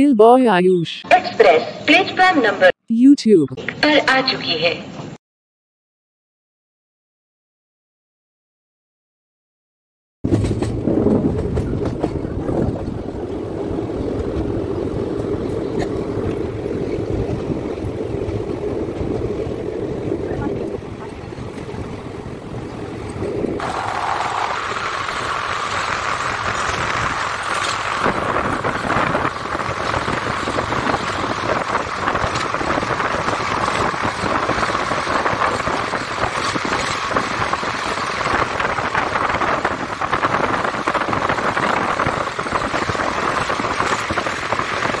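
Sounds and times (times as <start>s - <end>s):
train wheels rushing on rail: 10.3s - 45.0s.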